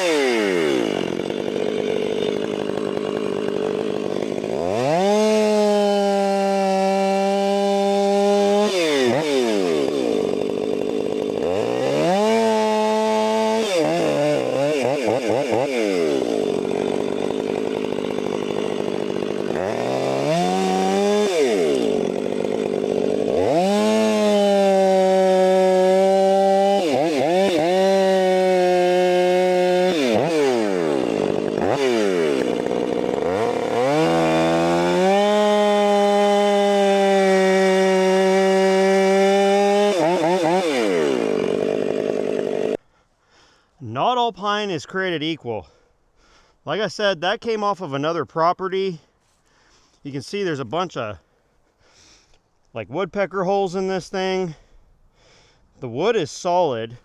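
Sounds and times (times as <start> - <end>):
chainsaw cutting wood: 0.0 - 43.6.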